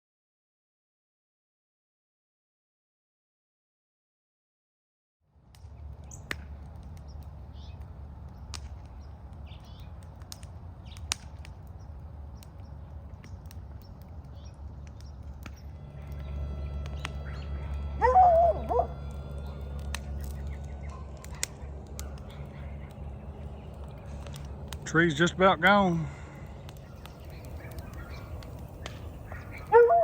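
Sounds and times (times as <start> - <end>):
steady low rumble: 5.4 - 30.0
birds chirping: 5.6 - 30.0
faint steady whine: 15.4 - 30.0
harsh bird call: 25.1 - 30.0.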